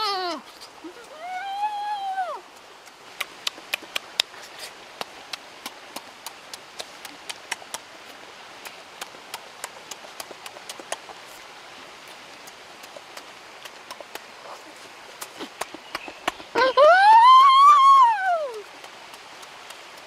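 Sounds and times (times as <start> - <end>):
steady hiss: 0.0 - 20.0
sharp mouth clicks: 2.6 - 11.4, 12.0 - 16.5
chewing and lip-smacking: 2.8 - 11.4, 12.0 - 16.5.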